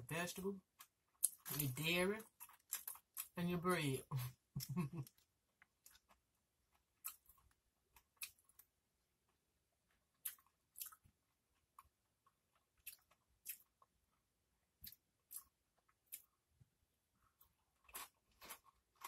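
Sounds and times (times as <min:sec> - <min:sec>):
tortilla chips crunching: 0:00.8 - 0:03.4, 0:17.4 - 0:19.0.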